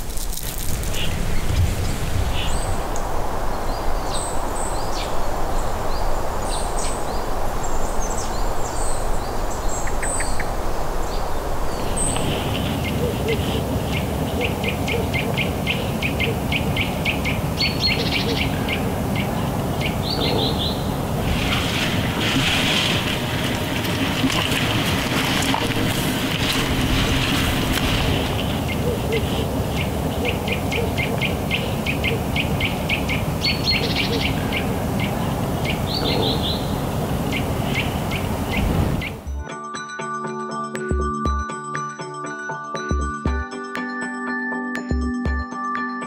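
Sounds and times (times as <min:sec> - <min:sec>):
steady rushing background: 0:00.6 - 0:39.4
birds chirping and calling: 0:00.9 - 0:02.8, 0:07.7 - 0:39.3.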